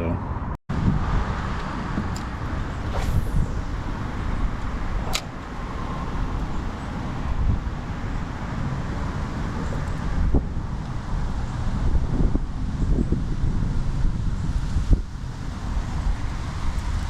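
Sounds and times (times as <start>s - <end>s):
wind buffeting microphone: 0.3s - 17.0s
sharp click: 5.0s - 5.4s.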